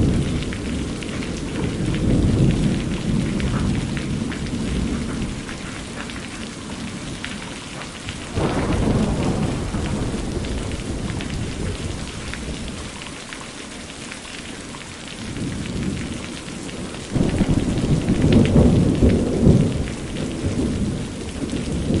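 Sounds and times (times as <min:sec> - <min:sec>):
rain patter: 0:00.0 - 0:22.0
thunder rolls: 0:17.2 - 0:21.1.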